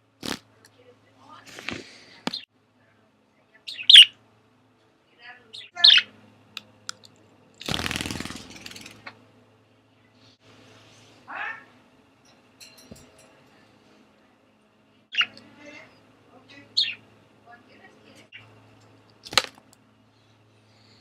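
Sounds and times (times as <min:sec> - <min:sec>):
budgerigars chirping: 0:03.7 - 0:04.2, 0:05.6 - 0:06.1, 0:16.8 - 0:17.0.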